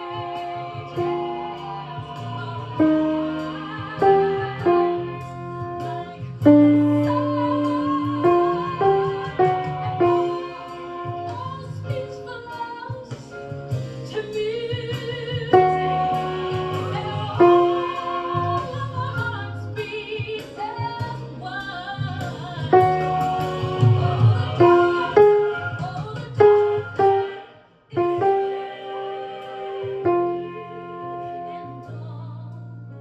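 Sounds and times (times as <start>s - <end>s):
choir singing sustained notes: 0.0s - 11.4s, 15.6s - 19.0s, 22.8s - 32.0s
instrumental accompaniment: 0.0s - 12.3s, 15.4s - 19.8s, 22.3s - 33.0s.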